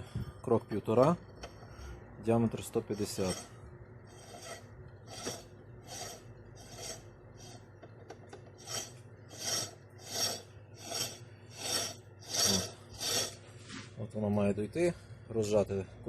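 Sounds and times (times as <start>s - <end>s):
steel threads rasping: 2.7s - 7.6s, 8.6s - 13.4s.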